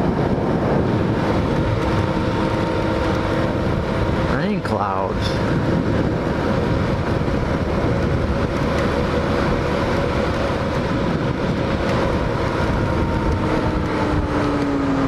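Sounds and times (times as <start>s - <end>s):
motorcycle engine cruising: 0.0s - 15.0s
wind rush on microphone: 0.0s - 15.0s.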